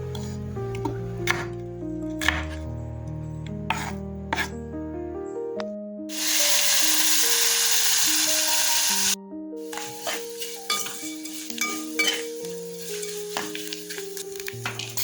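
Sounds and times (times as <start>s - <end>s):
background music: 0.0s - 15.0s
food sizzling in oil: 6.1s - 15.0s.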